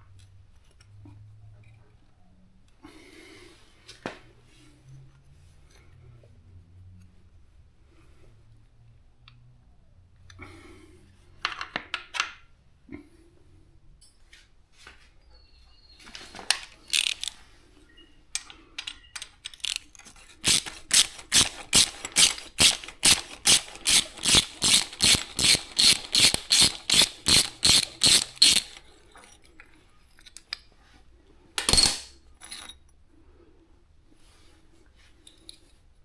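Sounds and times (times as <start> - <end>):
tools clinking: 16.6 - 17.4, 18.4 - 30.6, 31.6 - 32.9
socket ratchet clicking: 16.9 - 17.4, 19.2 - 28.9.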